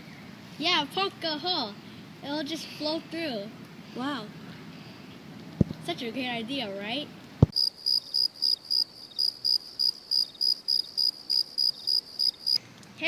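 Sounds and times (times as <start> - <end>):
crickets chirping: 7.5 - 12.6.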